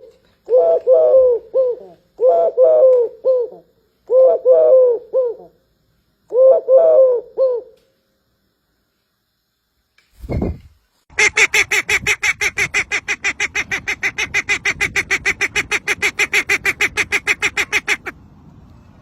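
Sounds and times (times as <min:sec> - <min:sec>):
bird honking calls: 0:11.2 - 0:18.1.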